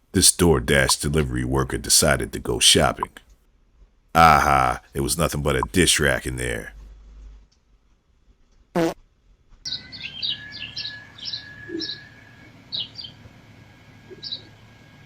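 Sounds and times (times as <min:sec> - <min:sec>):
faint steady whine: 0:00.0 - 0:03.2, 0:11.0 - 0:15.0
small birds chirping: 0:09.7 - 0:13.3, 0:14.1 - 0:14.6.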